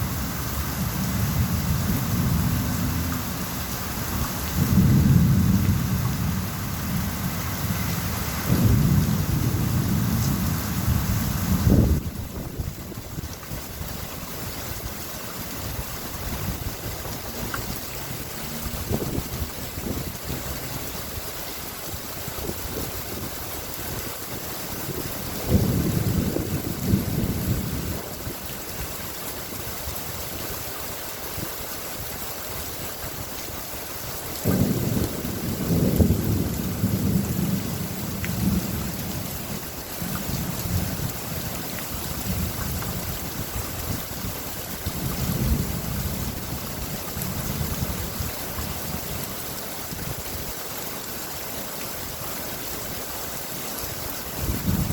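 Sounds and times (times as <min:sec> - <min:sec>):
steady rain falling: 0:00.0 - 0:54.9
thunder cracking and rumbling: 0:00.9 - 0:13.0, 0:34.4 - 0:39.3, 0:54.4 - 0:54.9.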